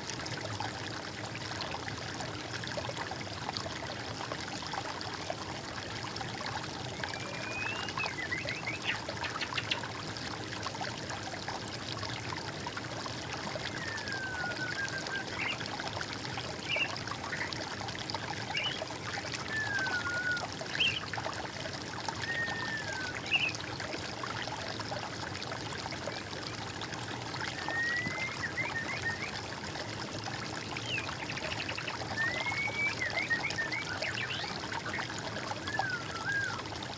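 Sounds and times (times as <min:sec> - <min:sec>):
water trickling: 0:00.0 - 0:36.9
birdsong: 0:07.1 - 0:09.8, 0:18.5 - 0:21.0, 0:22.2 - 0:23.5.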